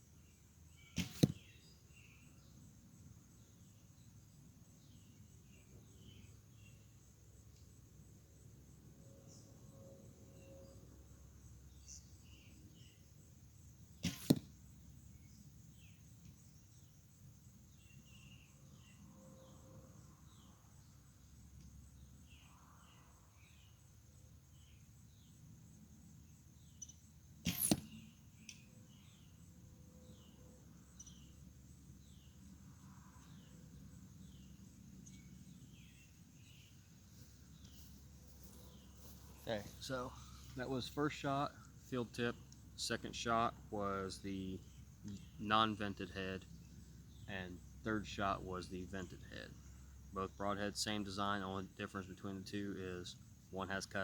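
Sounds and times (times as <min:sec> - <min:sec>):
bowstring crack: 0:01.0 - 0:01.4, 0:14.0 - 0:14.6, 0:27.4 - 0:28.7
arrow striking target: 0:01.0 - 0:01.5, 0:14.0 - 0:14.6, 0:27.4 - 0:28.0.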